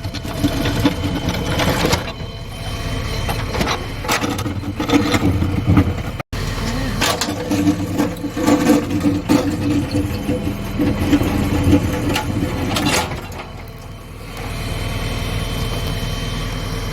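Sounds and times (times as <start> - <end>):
metallic knocks and scrapes: 0.0 - 6.2
backhoe diesel engine working: 0.0 - 16.9.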